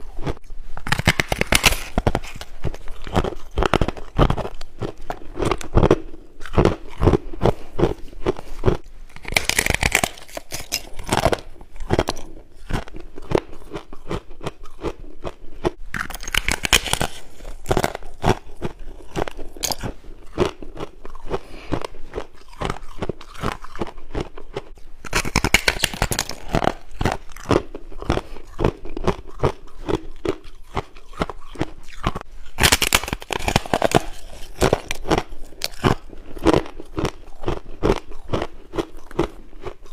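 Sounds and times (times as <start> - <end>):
person crunching ice: 0.0 - 39.9.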